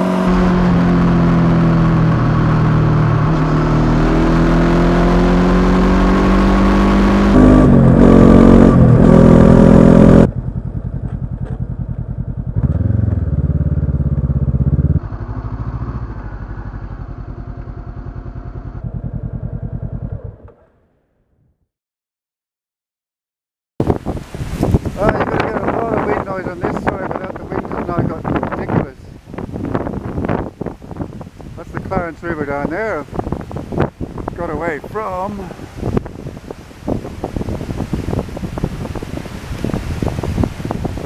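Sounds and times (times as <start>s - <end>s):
motorcycle engine running: 0.0s - 20.9s
wind rush: 23.8s - 41.0s.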